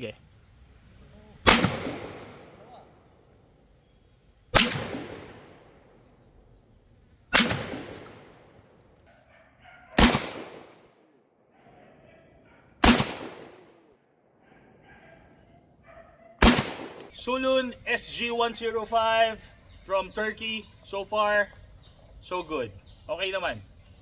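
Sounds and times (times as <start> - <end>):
shotgun shots: 1.4 - 2.9, 4.5 - 5.9, 7.3 - 8.7, 10.0 - 11.0, 12.8 - 13.9, 16.4 - 17.1.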